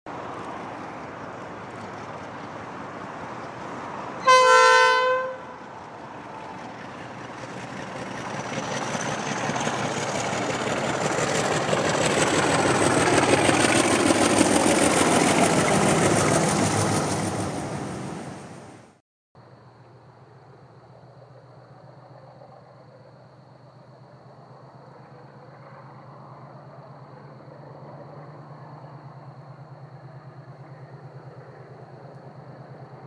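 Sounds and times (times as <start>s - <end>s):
train passing: 0.1s - 33.0s
train horn blast: 4.2s - 5.7s.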